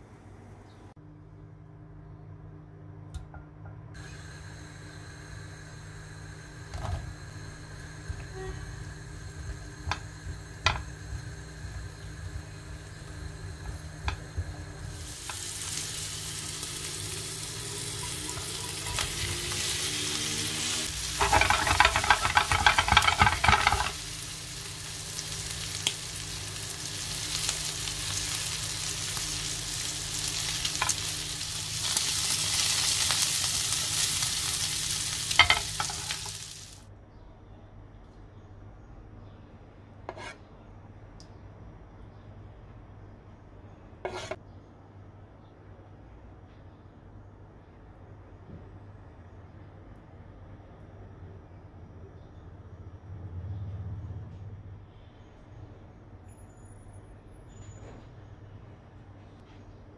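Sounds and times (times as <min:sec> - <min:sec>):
meatballs sizzling in butter: 0:04.0 - 0:36.8.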